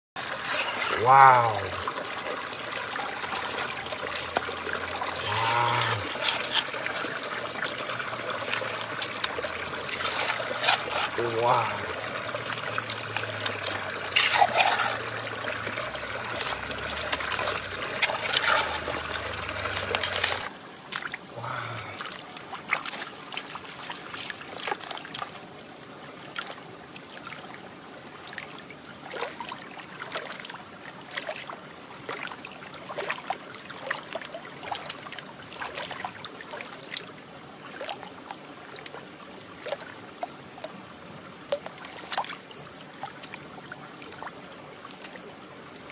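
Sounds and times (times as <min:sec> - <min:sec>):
water splashing in a pan: 0:00.2 - 0:25.4.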